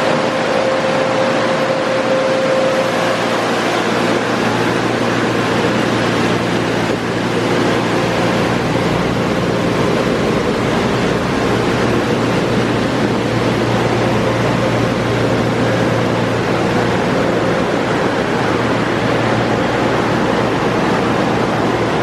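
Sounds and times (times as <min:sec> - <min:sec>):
car wash motors humming: 0:00.0 - 0:22.0
car wash water rush: 0:00.0 - 0:22.0.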